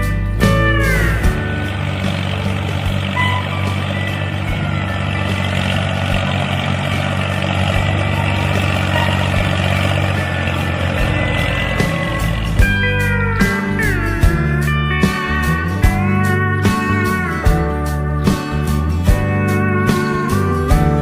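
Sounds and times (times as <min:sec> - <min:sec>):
small tractor motor running: 0:00.0 - 0:21.0.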